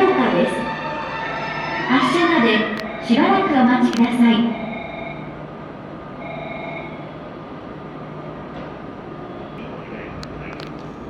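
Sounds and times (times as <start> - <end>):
train equipment humming: 0.0 - 11.0
sharp clicks: 3.9 - 4.2.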